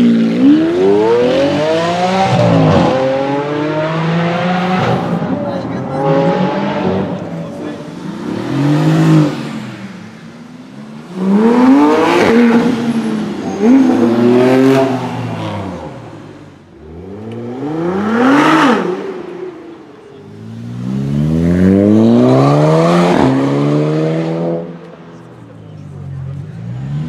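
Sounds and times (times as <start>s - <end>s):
car engines revving hard: 0.0s - 27.0s.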